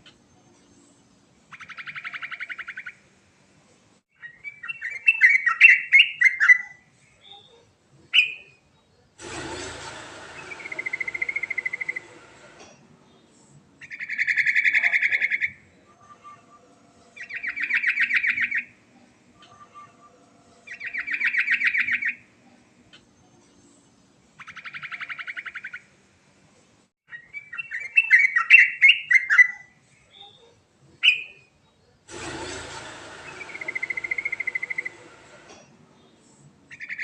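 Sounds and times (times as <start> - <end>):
burst of noise: 9.2 - 13.6, 32.1 - 36.7.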